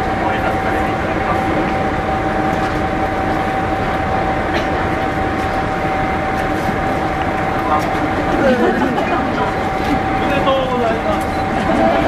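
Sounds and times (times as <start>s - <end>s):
diesel railcar idling: 0.0s - 12.0s.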